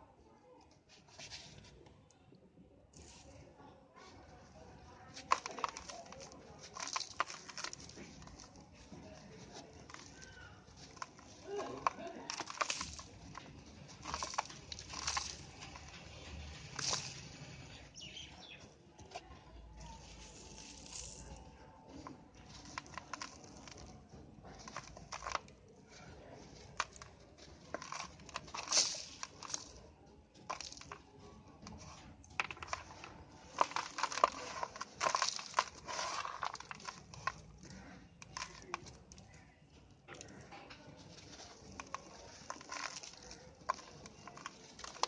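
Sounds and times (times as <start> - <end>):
dry dirt crumbling and crunching: 2.9 - 45.0.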